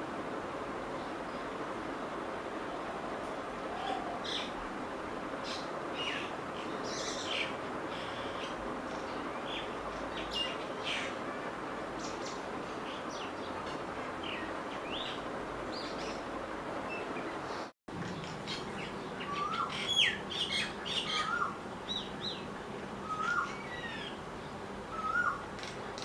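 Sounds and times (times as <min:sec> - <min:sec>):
steady background hiss: 0:00.0 - 0:26.0
birds chirping and calling: 0:16.9 - 0:24.2, 0:24.9 - 0:25.8.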